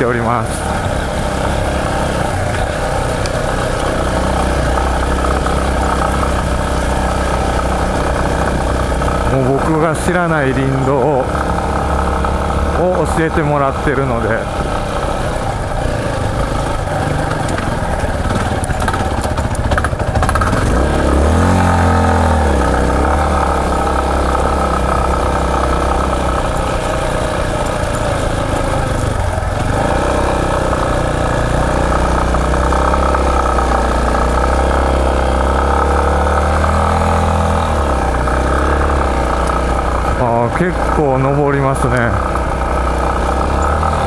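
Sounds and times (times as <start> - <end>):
motorcycle engine: 0.0 - 44.0.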